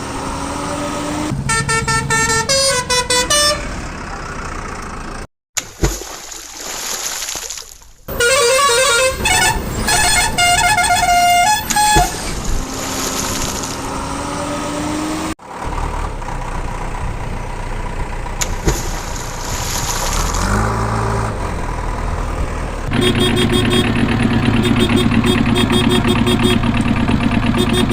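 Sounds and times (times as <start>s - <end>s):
engine rising in pitch: 0.0s - 5.3s, 12.7s - 18.4s, 19.9s - 27.9s
vehicle horn tooting: 1.4s - 3.8s, 8.1s - 12.2s, 22.9s - 26.8s, 27.5s - 27.9s.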